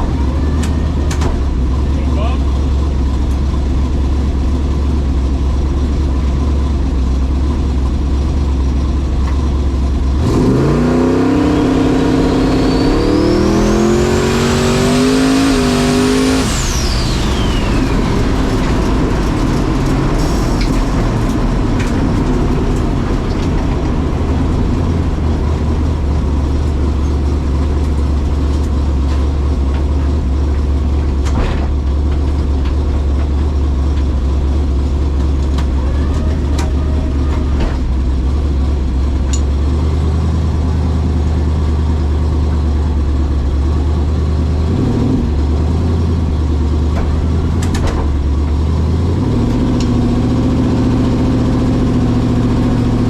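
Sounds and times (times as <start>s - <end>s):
low rumble: 0.0s - 40.8s
race car engine revving: 10.0s - 32.1s
high whine: 10.2s - 29.9s.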